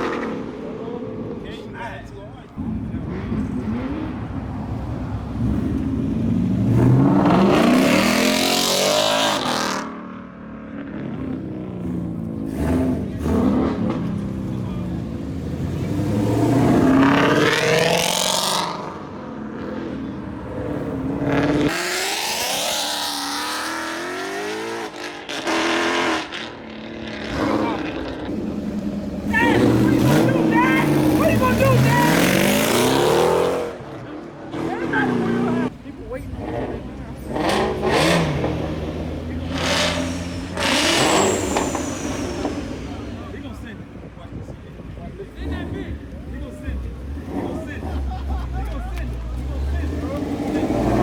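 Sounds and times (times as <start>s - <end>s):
car engine revving hard: 5.4s - 10.0s, 12.4s - 14.4s, 15.5s - 20.0s, 20.6s - 33.9s, 36.4s - 43.3s, 49.5s - 51.0s.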